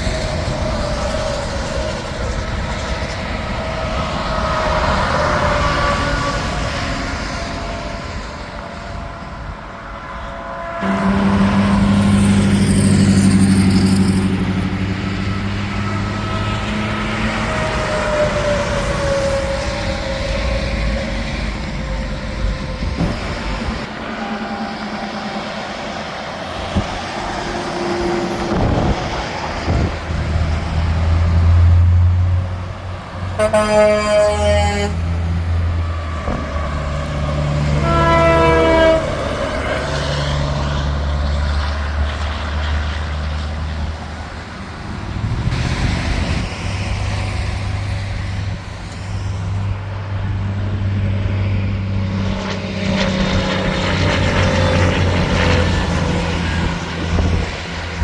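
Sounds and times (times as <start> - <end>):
trucks passing with engines droning: 0.0 - 58.0
truck air horn blasts: 10.8 - 14.0, 33.3 - 39.8.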